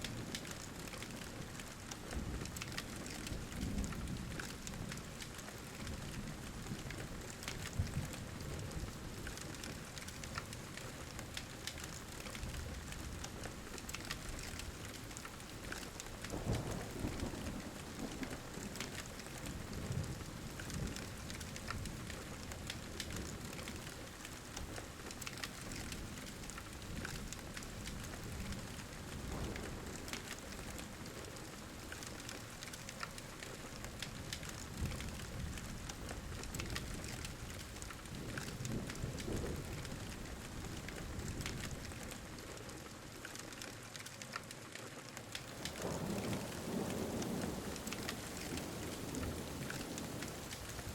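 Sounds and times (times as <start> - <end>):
heavy rain: 0.0 - 50.9
wood fire crackling: 0.0 - 50.9
thunder rumbling: 16.2 - 22.2.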